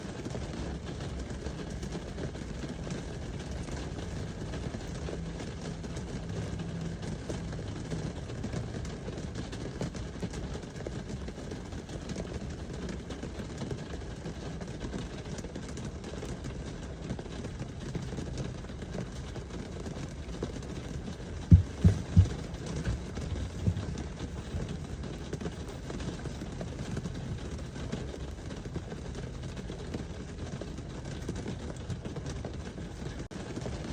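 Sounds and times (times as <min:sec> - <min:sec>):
steady rain: 0:00.0 - 0:33.9
sharp knocks: 0:21.4 - 0:24.0.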